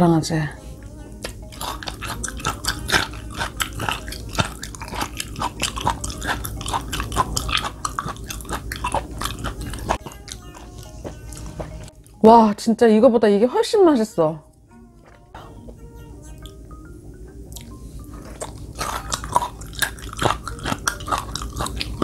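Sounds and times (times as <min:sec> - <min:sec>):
wet chewing clicks and smacks: 0:01.2 - 0:11.8, 0:17.5 - 0:22.0.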